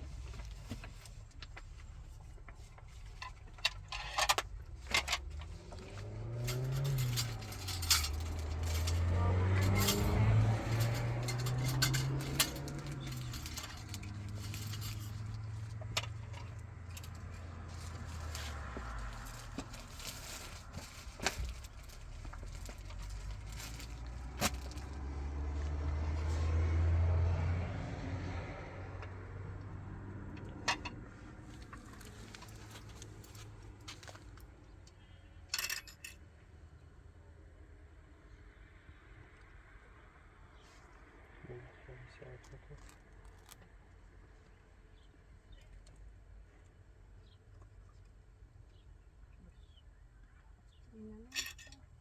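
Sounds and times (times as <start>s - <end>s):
vehicle engine humming: 0.0s - 51.8s
sharp clicks and rattles: 0.2s - 25.0s.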